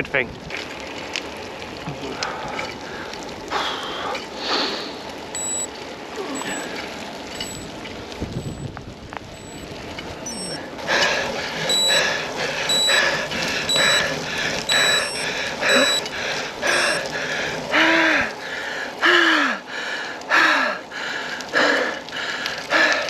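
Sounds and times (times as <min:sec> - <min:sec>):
rain: 0:00.0 - 0:23.0
short high beeps: 0:05.4 - 0:05.7, 0:06.4 - 0:06.7, 0:07.4 - 0:07.7, 0:08.4 - 0:08.7, 0:09.4 - 0:09.6, 0:10.3 - 0:10.6, 0:11.7 - 0:12.0, 0:12.7 - 0:13.1, 0:13.7 - 0:14.1, 0:14.7 - 0:16.1, 0:16.7 - 0:17.0
heavy breathing: 0:10.8 - 0:23.0.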